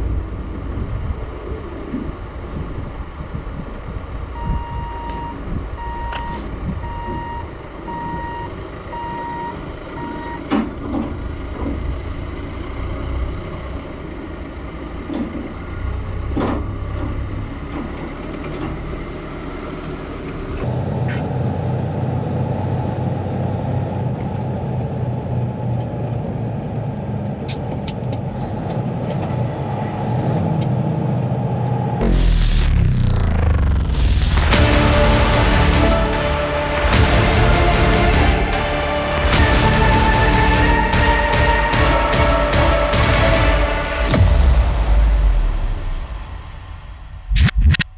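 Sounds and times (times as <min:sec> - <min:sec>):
reversing alarm beeping: 0:04.4 - 0:10.5
diesel engine running: 0:32.0 - 0:47.3.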